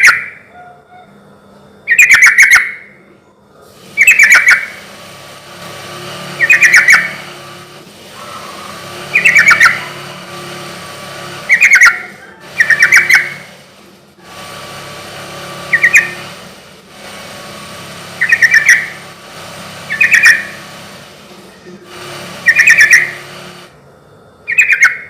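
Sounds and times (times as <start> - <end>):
faint background hum: 0.0 - 16.8
bird singing chattering phrases: 1.9 - 4.9, 6.0 - 10.5, 11.2 - 13.7, 15.4 - 16.4, 18.1 - 19.2, 19.8 - 20.7, 21.3 - 23.4, 24.5 - 25.0.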